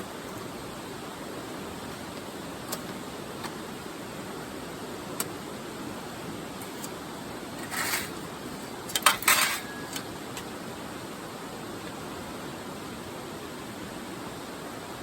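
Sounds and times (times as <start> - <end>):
metal pieces clinking: 7.6 - 8.2, 8.9 - 9.9
short scrape: 7.6 - 8.2.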